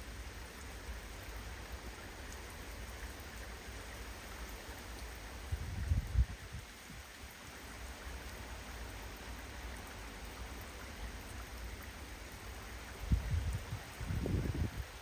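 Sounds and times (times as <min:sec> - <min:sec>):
rain hissing: 0:00.0 - 0:15.0
wind rumbling on microphone: 0:05.4 - 0:07.3, 0:12.8 - 0:15.0.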